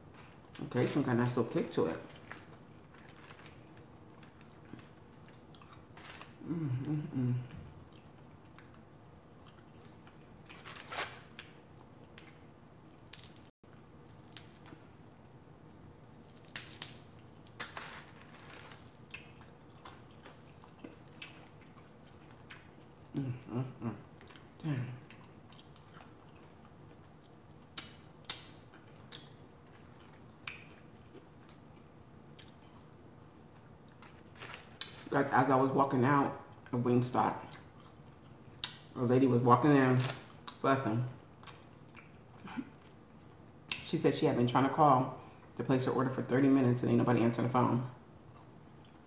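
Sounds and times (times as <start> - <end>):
person chewing crispy chicken: 2.0 - 6.9, 7.5 - 35.1
short low vocal sound: 6.4 - 7.7.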